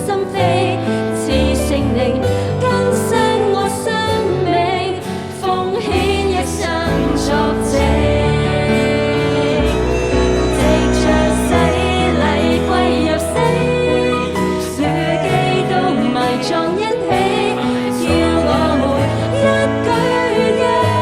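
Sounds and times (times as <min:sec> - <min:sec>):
keyboard or guitar accompaniment: 0:00.0 - 0:21.0
person singing with vibrato: 0:00.0 - 0:21.0
bass line: 0:06.0 - 0:16.2.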